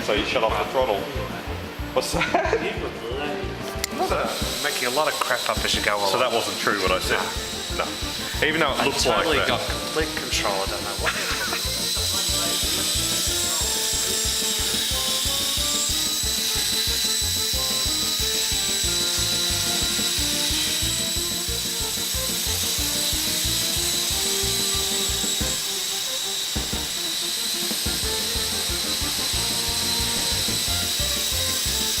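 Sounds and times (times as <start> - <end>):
background music with beat: 0.1 - 32.0
rc helicopter motor whine: 3.7 - 32.0.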